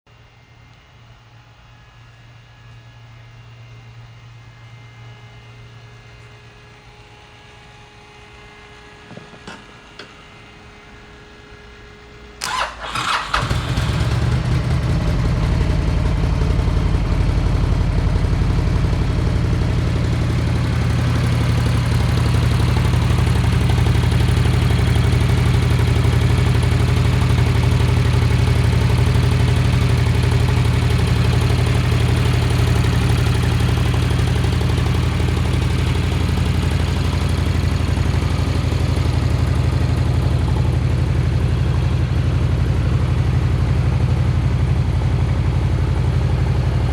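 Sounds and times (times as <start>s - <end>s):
motorcycle engine starting and idling: 8.9s - 10.7s, 12.2s - 46.9s.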